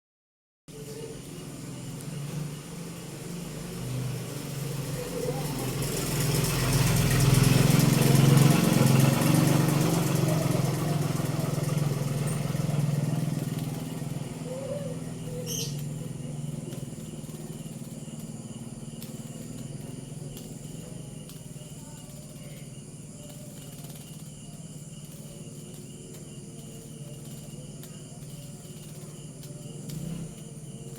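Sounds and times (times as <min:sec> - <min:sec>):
night insects chirring: 0:00.7 - 0:30.9
vehicle engine passing: 0:01.1 - 0:20.9.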